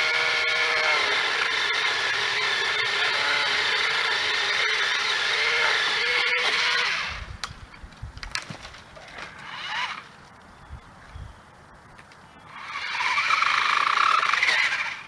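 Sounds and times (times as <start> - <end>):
electric pole saw motor: 0.0 - 7.3, 9.3 - 10.1, 12.5 - 15.0.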